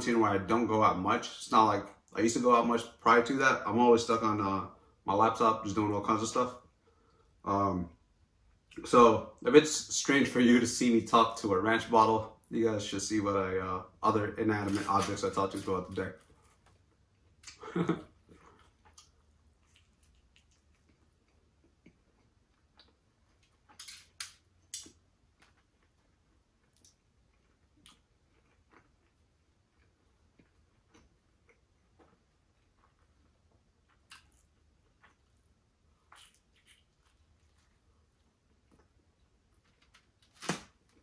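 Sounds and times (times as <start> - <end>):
chewing mouth clicks and smacks: 18.3 - 33.2, 33.8 - 35.4, 36.0 - 37.8.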